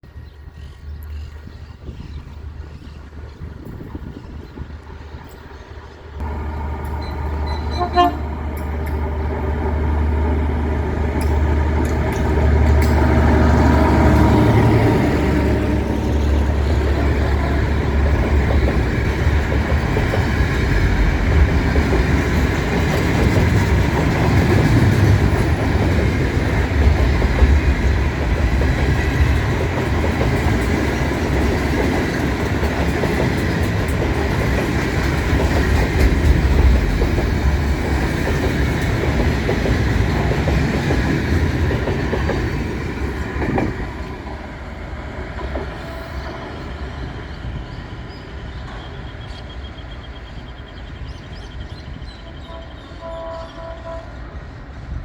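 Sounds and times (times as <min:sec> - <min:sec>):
freight train wagons rolling: 0:00.1 - 0:55.0
wheels clicking over rail joints: 0:05.1 - 0:44.4.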